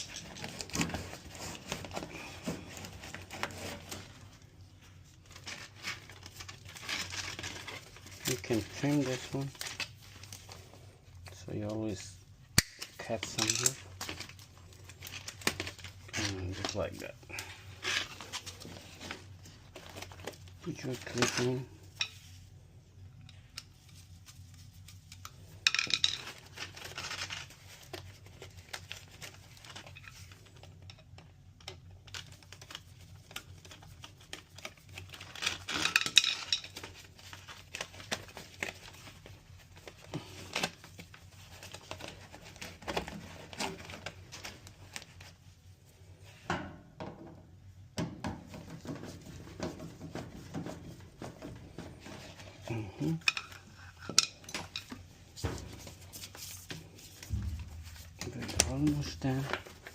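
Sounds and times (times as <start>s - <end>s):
metal parts rattling: 13.2s - 13.8s.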